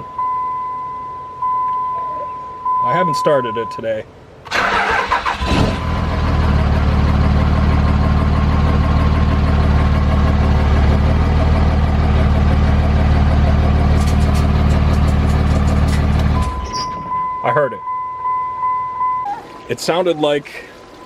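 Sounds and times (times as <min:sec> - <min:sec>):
diesel engine idling: 0:04.2 - 0:17.5.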